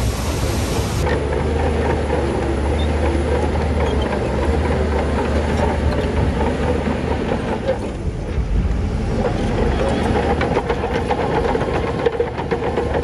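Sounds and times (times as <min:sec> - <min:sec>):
diesel machinery droning: 0:00.0 - 0:13.0
metal clanks and rattles: 0:09.2 - 0:13.0.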